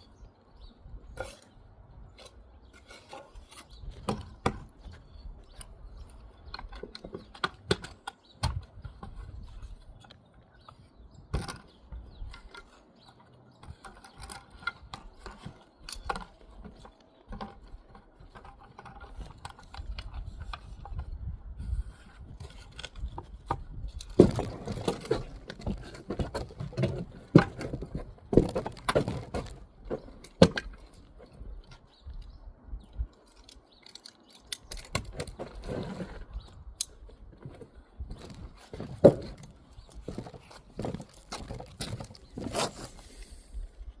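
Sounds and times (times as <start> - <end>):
trowel and bricks tapping and scraping: 1.0 - 31.8.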